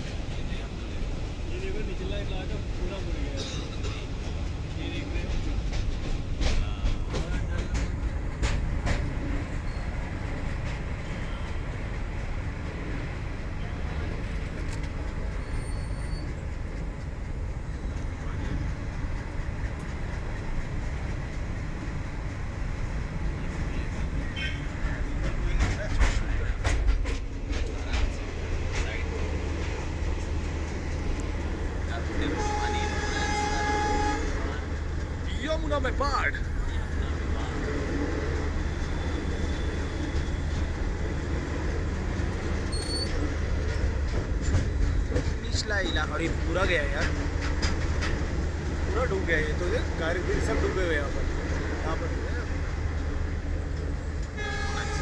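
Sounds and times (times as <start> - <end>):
train wheels rolling on rails: 0.0 - 55.0
brief high squeak: 42.7 - 43.2.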